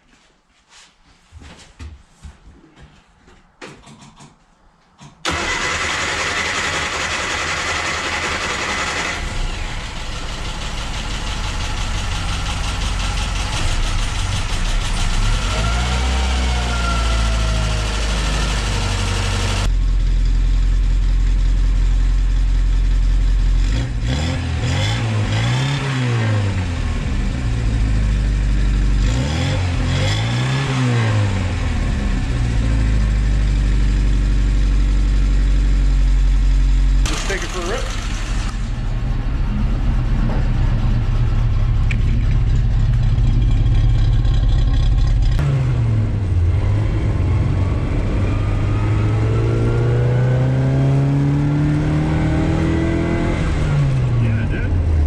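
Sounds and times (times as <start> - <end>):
car engine revving: 5.2 - 19.7, 23.5 - 33.4, 37.0 - 55.0.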